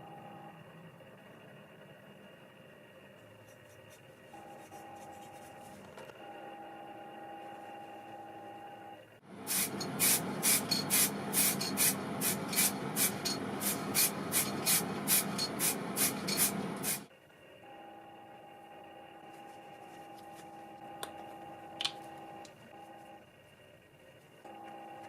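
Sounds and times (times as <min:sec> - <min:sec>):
spray hissing in pulses: 0:09.4 - 0:17.0.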